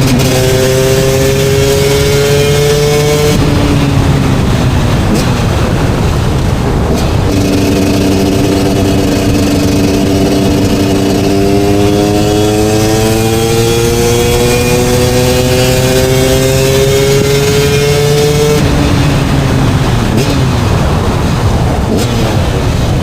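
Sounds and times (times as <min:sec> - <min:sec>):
two-stroke motorcycle engine revving: 0:00.0 - 0:23.0.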